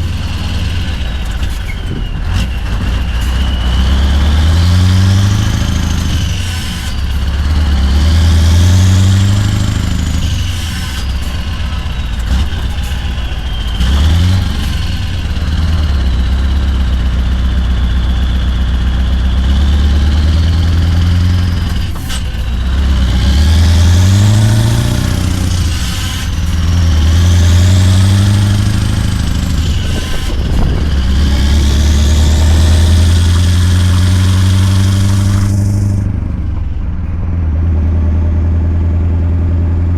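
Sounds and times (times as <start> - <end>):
high whistle: 0.0 - 7.4, 8.2 - 19.5
loud diesel truck engine: 0.0 - 39.9.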